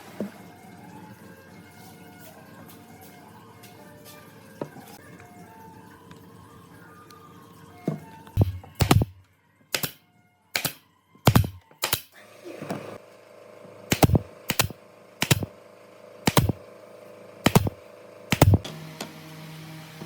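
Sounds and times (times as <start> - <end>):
sharp knocks on wood: 8.4 - 9.1.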